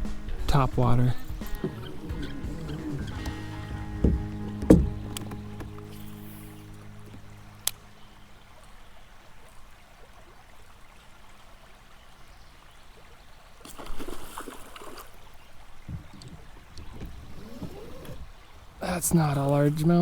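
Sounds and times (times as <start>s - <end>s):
faint gurgling water: 0.0s - 20.0s
fish splashing: 13.6s - 19.6s.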